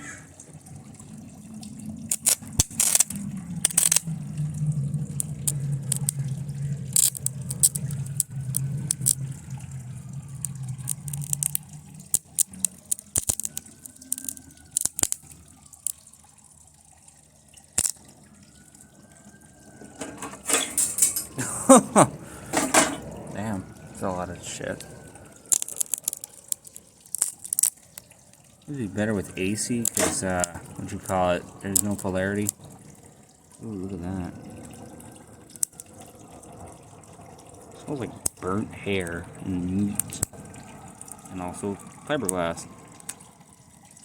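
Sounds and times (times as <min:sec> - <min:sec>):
low steady hum: 0:00.0 - 0:44.0
electrical arcing crackles and pops: 0:02.1 - 0:16.0, 0:24.0 - 0:28.4.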